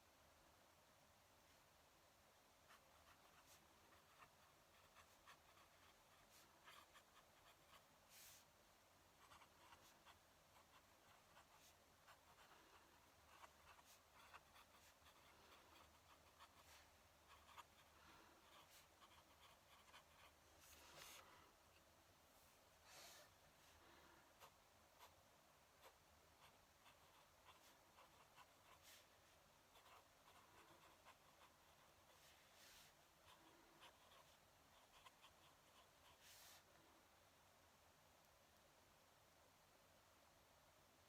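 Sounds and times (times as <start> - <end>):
pen nib scratching paper: 2.7 - 8.5, 9.2 - 21.3, 24.4 - 25.2, 25.8 - 36.7.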